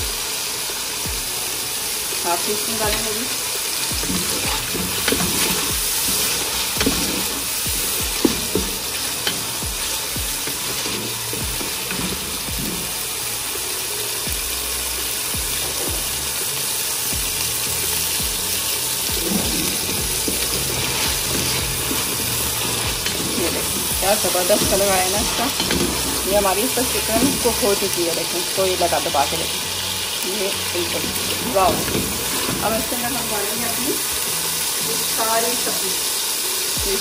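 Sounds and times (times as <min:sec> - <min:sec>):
food sizzling in a wok: 0:00.0 - 0:37.0
wooden spatula knocking pan: 0:04.0 - 0:12.9.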